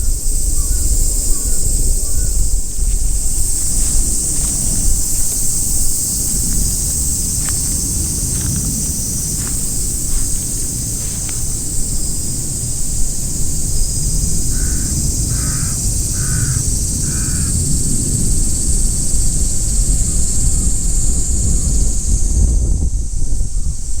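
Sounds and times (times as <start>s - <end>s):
high hiss: 0.0s - 24.0s
wind on microphone: 0.0s - 24.0s
crow cawing: 0.6s - 2.4s, 14.5s - 17.6s.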